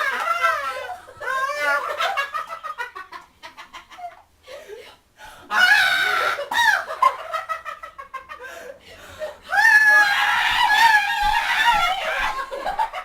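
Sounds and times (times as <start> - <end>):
high-pitched squeals and giggling: 0.0 - 2.8.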